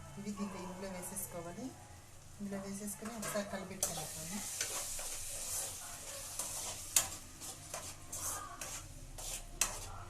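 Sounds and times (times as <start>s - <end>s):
curry sizzling: 0.0s - 10.0s
spoon scraping a pan: 2.9s - 10.0s.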